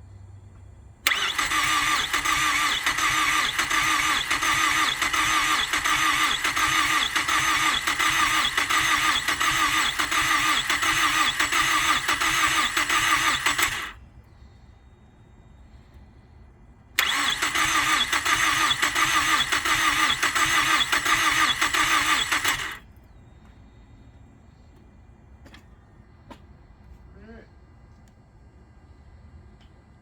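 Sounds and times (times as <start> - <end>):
engine cranking without starting: 1.0 - 14.0, 17.0 - 22.9.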